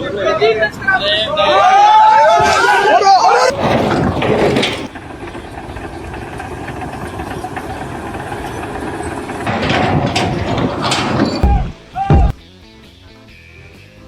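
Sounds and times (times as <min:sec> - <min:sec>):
engine running: 0:03.5 - 0:11.8.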